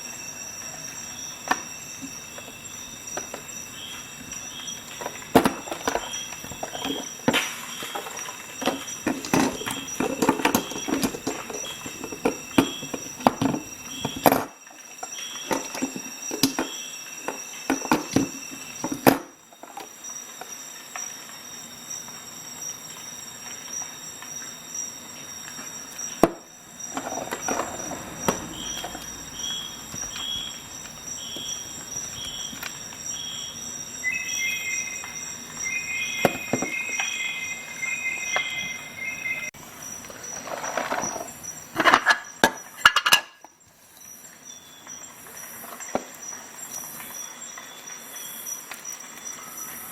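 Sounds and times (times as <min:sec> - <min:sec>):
short beeping tones: 0:34.0 - 0:39.5.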